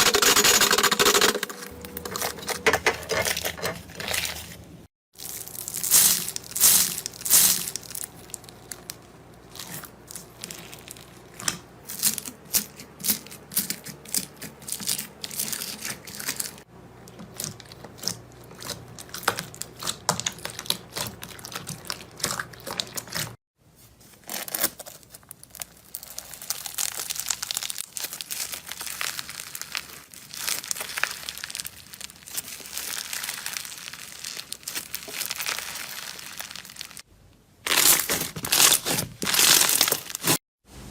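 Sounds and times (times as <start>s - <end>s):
slime crackling and popping: 5.2s - 13.3s, 24.3s - 37.1s, 37.7s - 40.4s.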